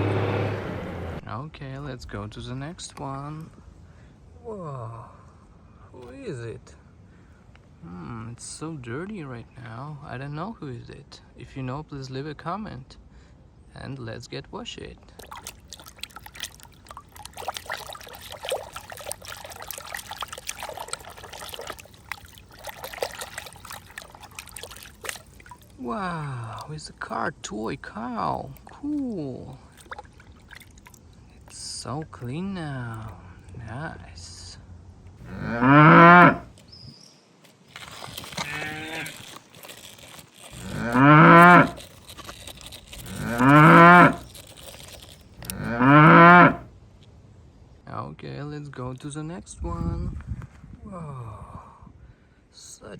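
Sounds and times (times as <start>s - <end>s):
water trickling and splashing: 15.0s - 33.2s, 35.2s - 36.8s, 37.4s - 46.6s
water drips: 15.1s - 32.3s, 37.7s - 46.6s
cow mooing: 35.2s - 36.5s, 38.3s - 39.3s, 40.5s - 41.8s, 43.0s - 44.3s, 45.4s - 46.6s.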